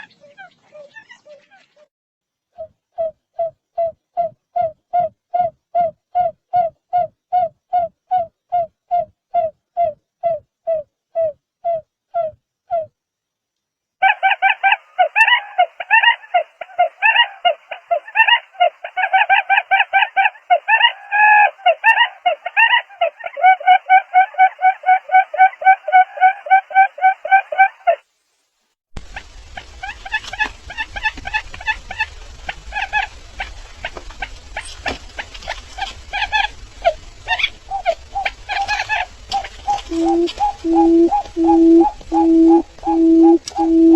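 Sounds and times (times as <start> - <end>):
bird clucking calls: 14.0 - 28.0, 29.0 - 43.9.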